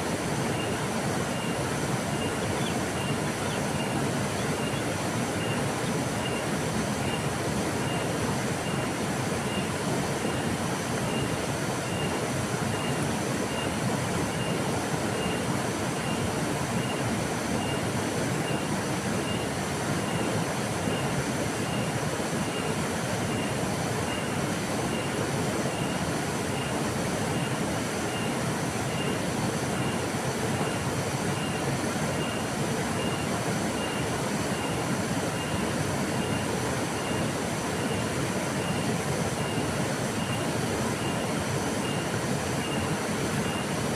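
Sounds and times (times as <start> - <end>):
river water flowing: 0.0 - 43.9.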